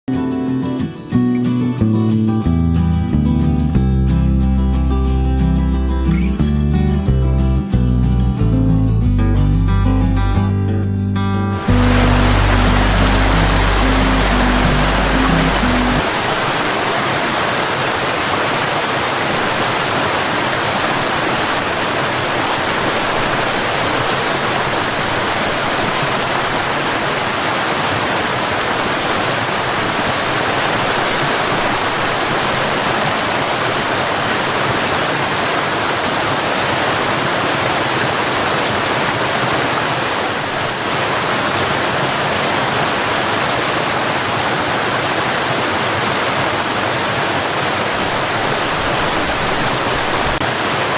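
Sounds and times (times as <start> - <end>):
fast-flowing water rushing: 11.6 - 50.9.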